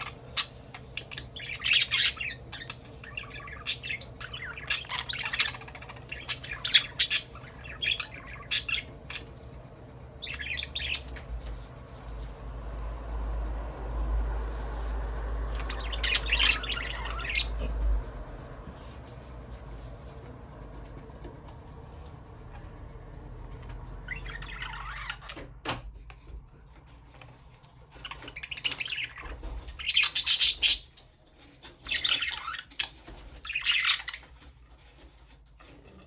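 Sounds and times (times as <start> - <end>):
budgerigars chirping and squawking: 0.0 - 9.5, 10.1 - 11.7, 14.5 - 18.3, 23.5 - 25.5, 27.9 - 34.8
low rumble: 8.9 - 24.9.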